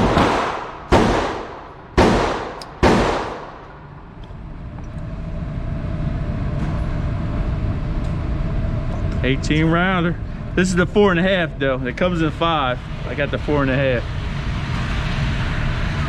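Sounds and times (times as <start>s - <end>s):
echoing gunshots: 0.0s - 3.9s
steady background hum: 0.0s - 16.0s.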